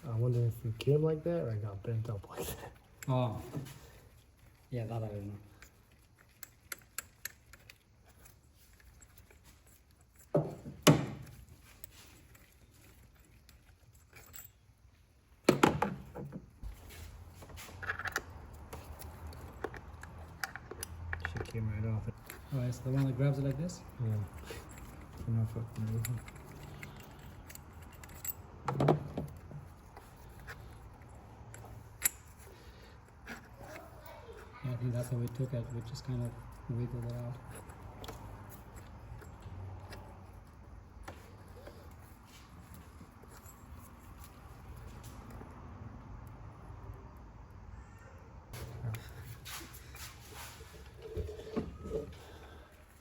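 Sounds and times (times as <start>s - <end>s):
tools knocking and clattering: 9.1s - 14.6s, 15.4s - 16.6s, 24.2s - 30.7s.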